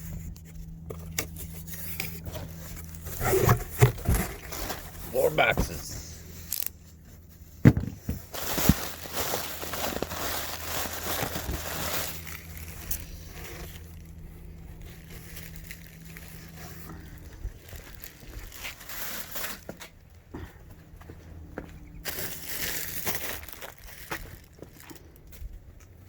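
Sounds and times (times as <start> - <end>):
faint low hum: 0.0 - 26.0
cardboard crinkling and tearing: 1.0 - 6.7, 7.9 - 14.2, 14.8 - 19.9, 22.1 - 25.2.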